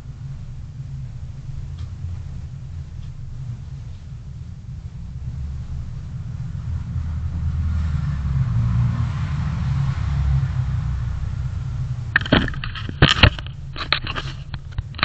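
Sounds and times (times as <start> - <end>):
car engine and road rumble: 0.0 - 15.0
sharp clicks and knocks: 12.1 - 15.0.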